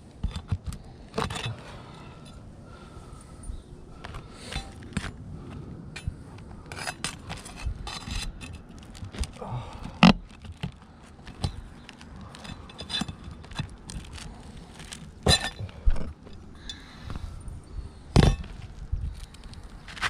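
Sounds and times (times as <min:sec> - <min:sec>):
roof shingles scraping and crackling: 0:06.7 - 0:15.8.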